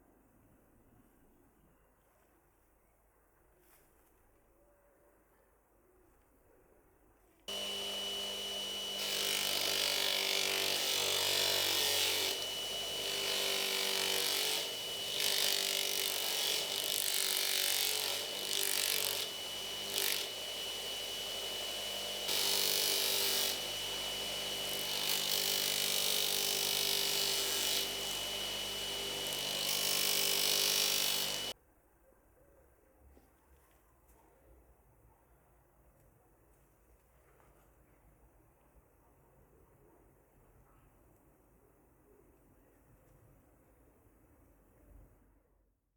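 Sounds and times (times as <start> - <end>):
bench grinder whining: 7.5 - 31.5
workpiece grinding on wheel: 7.5 - 31.5.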